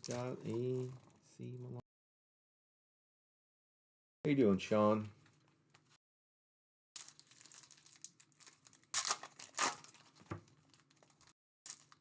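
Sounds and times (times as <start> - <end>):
plastic wrapping crinkling and tearing: 0.0 - 1.2, 7.0 - 12.0.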